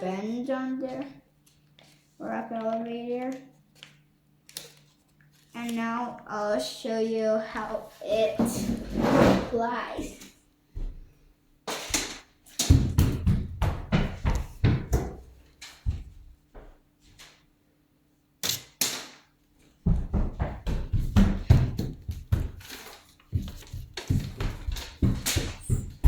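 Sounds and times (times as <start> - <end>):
rapid thumps and knocks: 12.7 - 15.3, 19.8 - 26.0.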